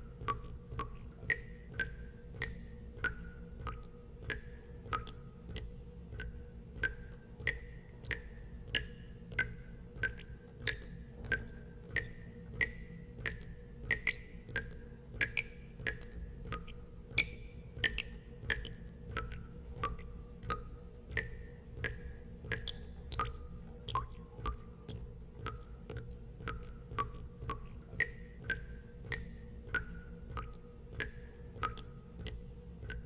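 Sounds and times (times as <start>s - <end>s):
steady low hum: 0.0s - 33.0s
water drops plinking into water: 0.0s - 33.0s.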